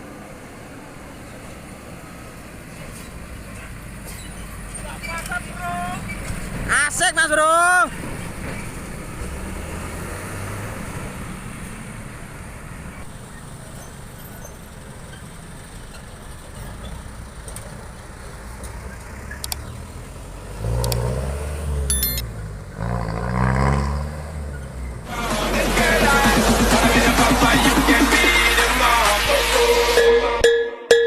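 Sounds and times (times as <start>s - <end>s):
truck engine revving: 7.9s - 30.4s.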